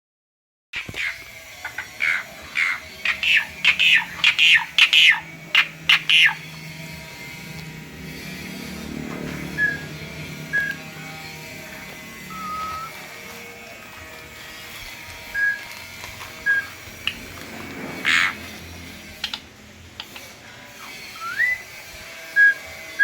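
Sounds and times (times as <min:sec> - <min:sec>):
bird whistled notes: 0:00.8 - 0:06.4, 0:09.4 - 0:10.8, 0:12.3 - 0:13.0, 0:15.4 - 0:15.6, 0:16.4 - 0:16.8, 0:20.8 - 0:21.7, 0:22.3 - 0:22.7
starling harsh chirps: 0:00.8 - 0:06.9, 0:09.4 - 0:13.2, 0:14.9 - 0:22.7.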